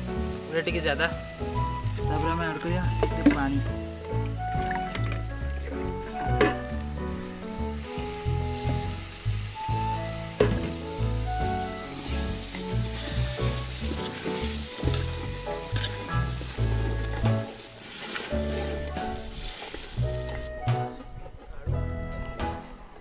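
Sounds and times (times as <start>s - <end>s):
masala sizzling in oil: 0.0s - 20.9s
music with rhythmic bass: 0.0s - 23.0s
metal spatula stirring: 11.9s - 20.0s.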